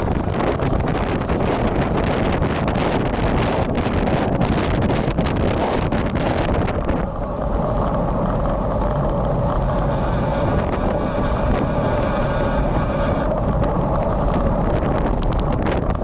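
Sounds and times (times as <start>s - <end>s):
steady hum: 0.0s - 3.2s, 5.1s - 16.0s
wind buffeting microphone: 0.0s - 16.0s
dense crackle: 4.5s - 16.0s.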